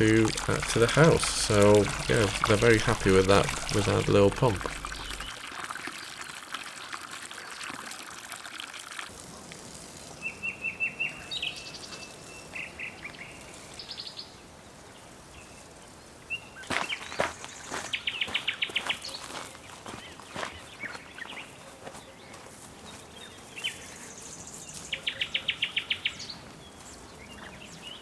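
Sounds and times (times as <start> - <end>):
birds chirping: 0.0 - 5.4
water gushing from a hose: 0.0 - 10.4.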